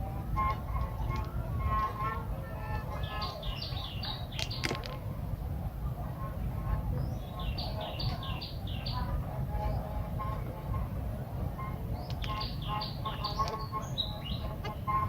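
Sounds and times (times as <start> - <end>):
steady low rumble: 0.0 - 15.0
high chirping calls: 12.0 - 14.5.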